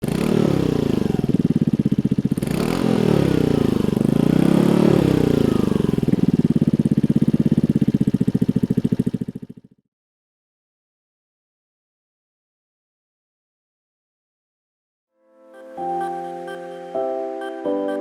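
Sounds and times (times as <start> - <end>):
scooter engine running: 0.0 - 9.9.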